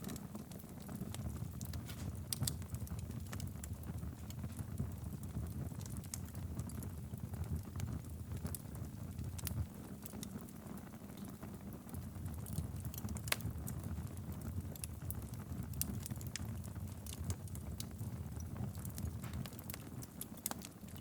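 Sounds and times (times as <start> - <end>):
fire crackles and pops: 0.0 - 21.0
wood fire rumbling: 0.0 - 21.0.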